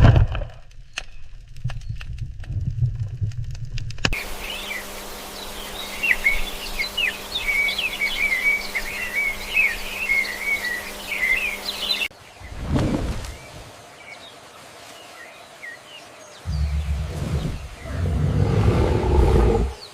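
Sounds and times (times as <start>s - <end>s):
small birds chirping: 4.2s - 19.9s.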